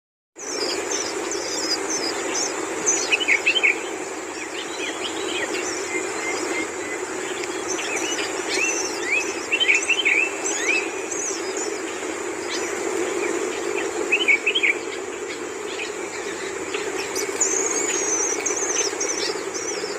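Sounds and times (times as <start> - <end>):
steady low hum: 0.4 - 19.9
shrikes chirping and calling: 0.5 - 19.9.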